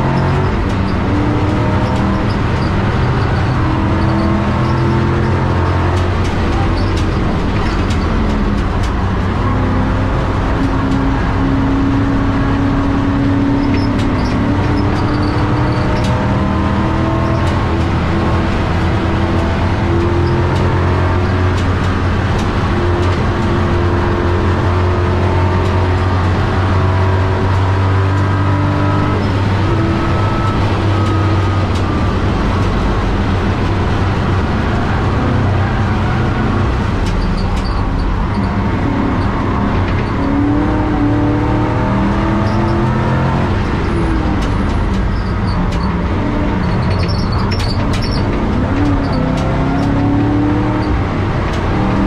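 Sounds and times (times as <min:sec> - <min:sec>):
race car engine under load: 0:00.0 - 0:52.0
road and wind noise: 0:00.0 - 0:52.0.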